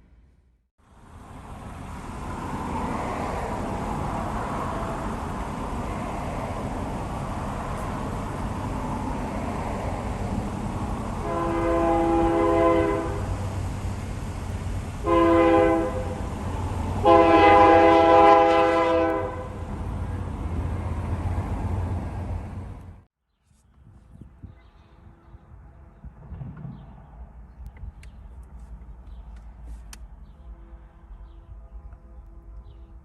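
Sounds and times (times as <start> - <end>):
train rumble: 0.9 - 23.1, 24.4 - 33.0
locomotive air horn blasts: 11.1 - 13.6, 15.0 - 16.4, 17.0 - 19.6, 30.4 - 33.0.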